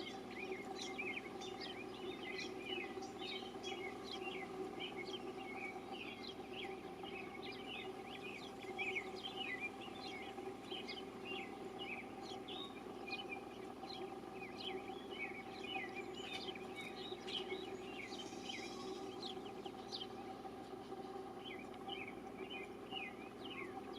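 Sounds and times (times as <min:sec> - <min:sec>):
small birds chirping: 0:00.0 - 0:23.9
steady low hum: 0:00.0 - 0:23.9.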